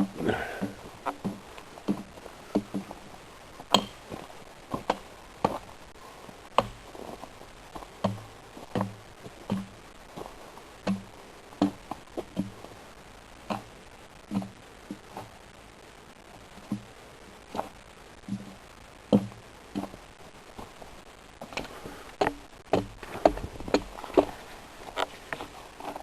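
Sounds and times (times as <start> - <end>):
sharp knocks and clicks: 3.7 - 4.0.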